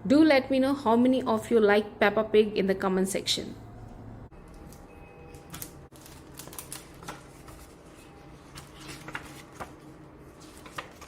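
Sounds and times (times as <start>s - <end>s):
faint room hum: 0.0s - 11.0s
paper rustling: 5.5s - 11.0s.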